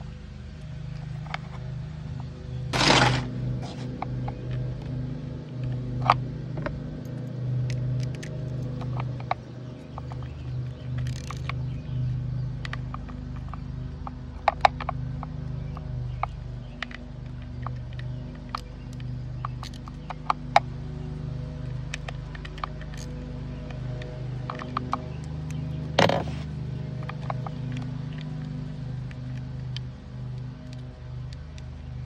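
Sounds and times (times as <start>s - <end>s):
steady low hum: 0.0s - 32.0s
short rasp: 2.8s - 3.9s
small clicks and taps of tools: 5.6s - 20.8s, 21.6s - 32.0s.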